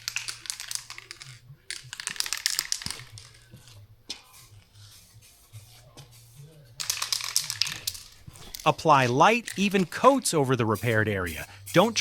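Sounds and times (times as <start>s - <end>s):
spray can rattling: 0.0s - 3.4s, 6.8s - 12.0s.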